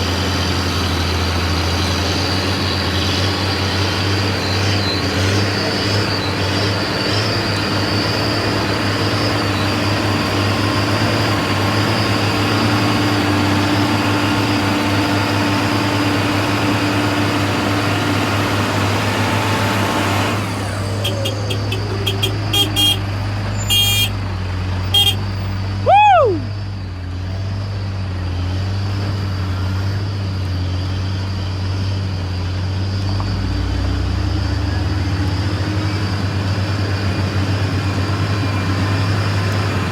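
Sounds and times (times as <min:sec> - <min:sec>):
heavy truck engine: 0:00.0 - 0:39.9
rising and falling horn tone: 0:20.9 - 0:24.2, 0:24.9 - 0:25.2
short horn toots: 0:21.0 - 0:24.2, 0:24.9 - 0:25.3.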